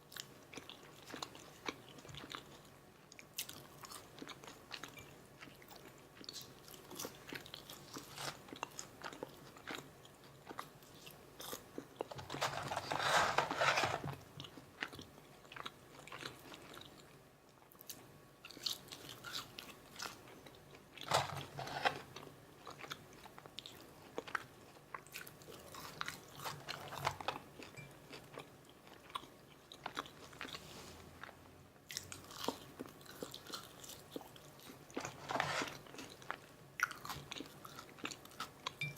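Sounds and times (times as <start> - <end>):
close chewing with wet mouth clicks: 0.0 - 12.1.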